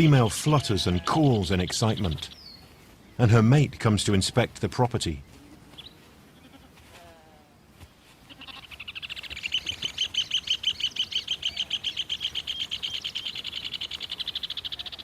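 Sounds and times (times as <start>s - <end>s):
birds calling in duet: 8.3s - 15.0s.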